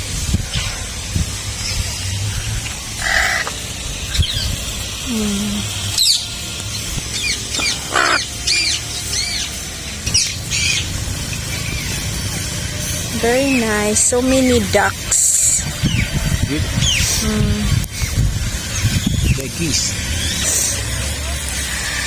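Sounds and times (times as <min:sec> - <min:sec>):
steady low hum: 0:00.0 - 0:22.0
birds chirping: 0:00.3 - 0:22.0
bird squawk: 0:03.0 - 0:04.5, 0:07.2 - 0:10.9.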